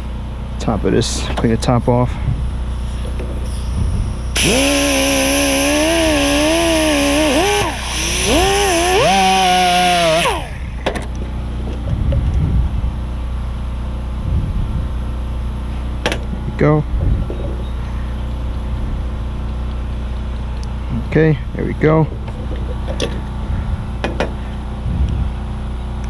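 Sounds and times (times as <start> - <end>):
handheld power tool: 3.4 - 10.8.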